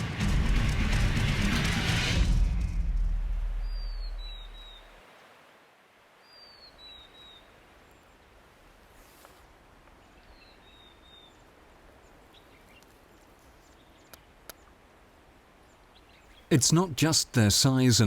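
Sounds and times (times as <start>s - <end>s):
faint mountain ambience: 2.8s - 18.0s
faint sharp clicks: 14.1s - 14.7s.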